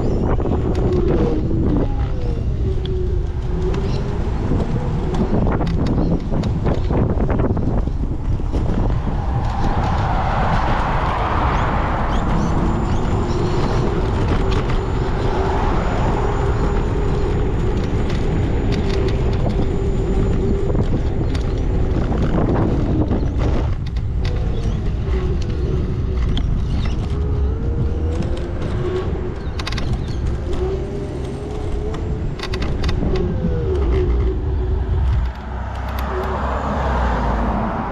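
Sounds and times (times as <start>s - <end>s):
road rumble: 0.0s - 37.9s
wind buffeting microphone: 0.0s - 37.9s
steady hum rising in pitch: 30.2s - 37.9s.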